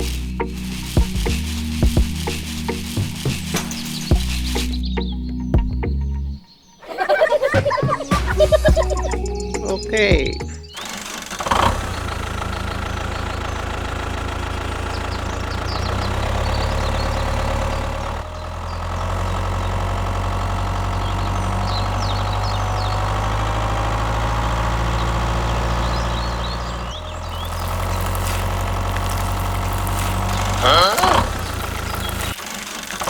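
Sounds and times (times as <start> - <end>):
tractor engine idling: 0.0 - 5.8, 8.4 - 33.0.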